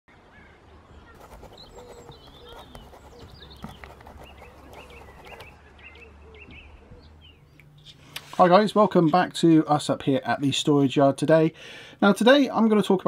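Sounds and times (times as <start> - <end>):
birds chirping and singing: 0.4 - 8.1.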